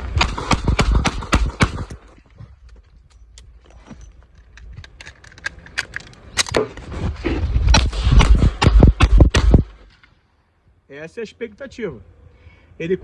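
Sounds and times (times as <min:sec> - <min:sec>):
revolver metallic clicks and rattles: 0:00.0 - 0:06.8.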